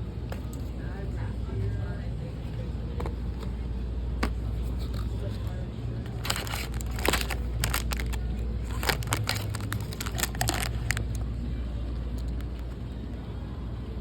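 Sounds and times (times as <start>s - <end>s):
handling clicks and rustles: 4.2s - 11.2s.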